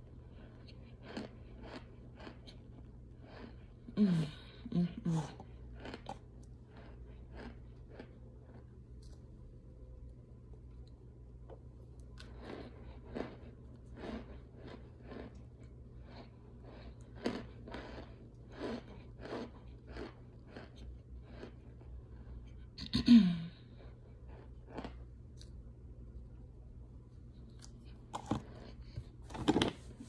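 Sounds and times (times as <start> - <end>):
crunchy chewing: 0.0 - 4.4, 5.3 - 9.3, 12.0 - 22.6, 23.8 - 25.6.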